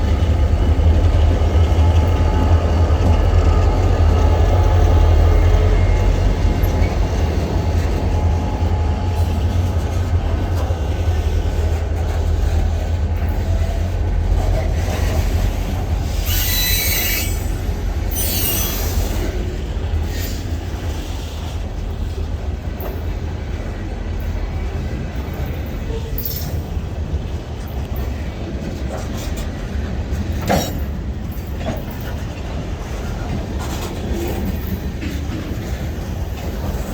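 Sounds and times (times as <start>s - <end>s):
train wheels rumbling on rail: 0.0s - 36.9s
high wheel squeals: 16.0s - 19.2s.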